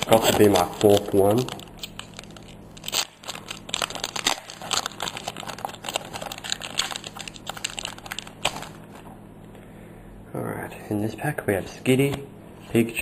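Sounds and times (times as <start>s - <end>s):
foil wrapper crinkling: 0.0s - 9.1s.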